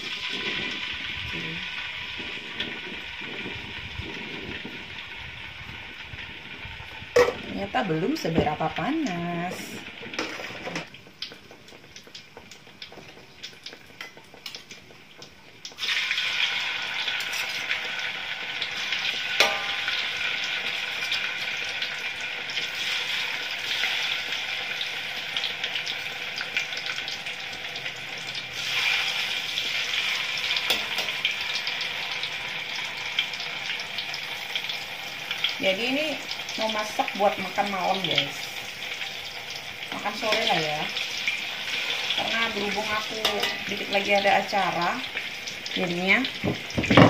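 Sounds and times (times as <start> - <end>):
tofu sizzling in oil: 0.0 - 47.0
spatula knocking on pan: 19.4 - 19.8, 46.4 - 47.0.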